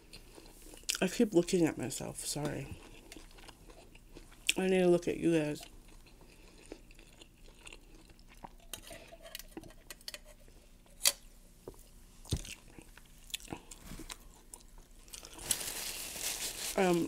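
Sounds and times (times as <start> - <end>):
chewing: 2.7 - 4.6, 5.6 - 9.8, 12.4 - 15.5.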